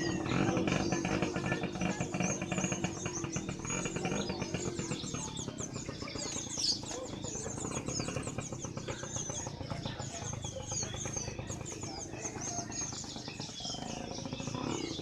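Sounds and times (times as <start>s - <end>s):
low market background hum: 0.0s - 15.0s
songbirds chirping and whistling: 0.0s - 15.0s.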